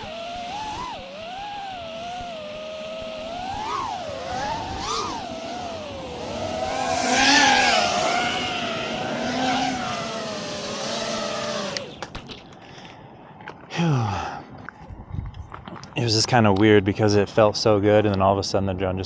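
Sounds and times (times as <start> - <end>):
drone motors whining: 0.0 - 12.8.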